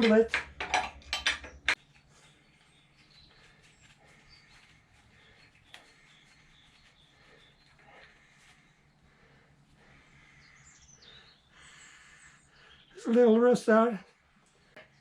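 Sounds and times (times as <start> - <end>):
faint bird chirps: 1.5 - 13.3.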